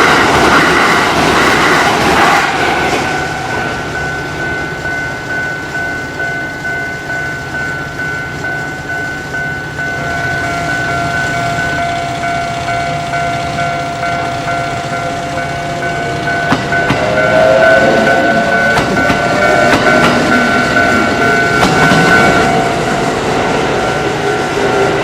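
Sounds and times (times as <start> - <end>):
train passing: 0.0 - 25.0
wheels clicking over rail joints: 0.0 - 25.0
level crossing alarm ringing: 3.1 - 24.7.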